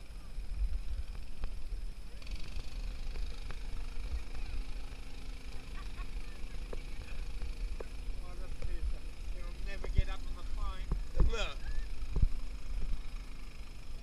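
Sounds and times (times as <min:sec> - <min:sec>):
lawn mower engine running: 0:00.0 - 0:14.0
wind rumble on microphone: 0:09.9 - 0:13.1.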